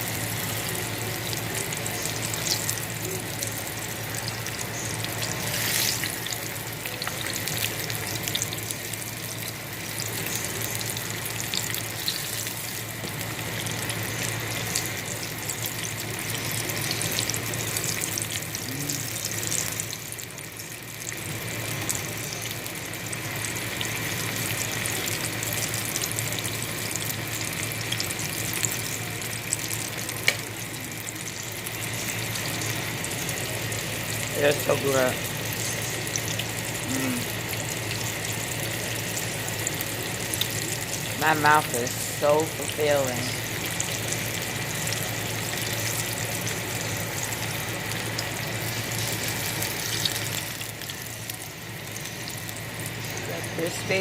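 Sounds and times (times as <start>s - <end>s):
food sizzling in hot oil: 0.0s - 54.0s.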